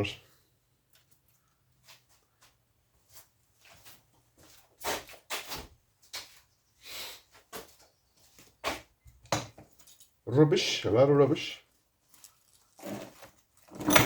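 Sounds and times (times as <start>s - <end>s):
scraping rustle: 12.0s - 14.0s
scrap parts knocking and clattering: 12.8s - 14.0s.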